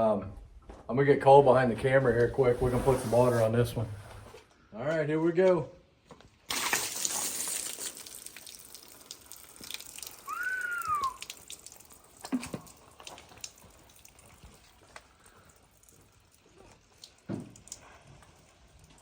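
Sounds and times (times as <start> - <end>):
water dripping and trickling: 6.5 - 19.0
short whistled chirp: 10.3 - 11.2.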